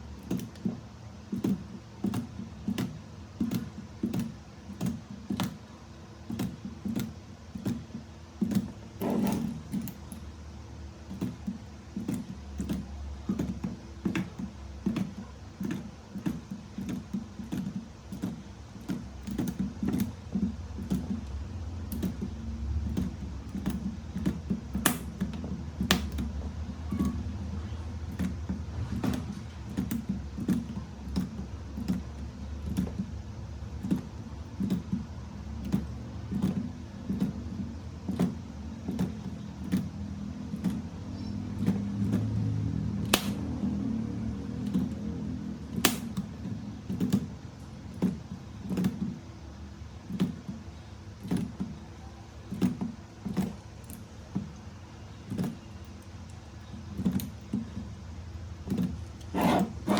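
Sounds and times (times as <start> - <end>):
hard parts clicking and knocking: 0.0 - 59.9.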